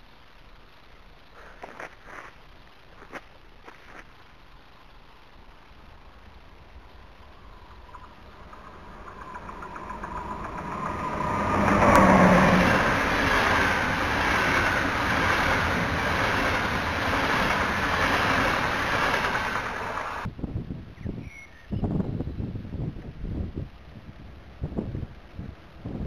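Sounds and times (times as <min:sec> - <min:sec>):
wheels rushing on rails: 0:04.6 - 0:20.3
passenger train passing at speed: 0:05.6 - 0:20.3.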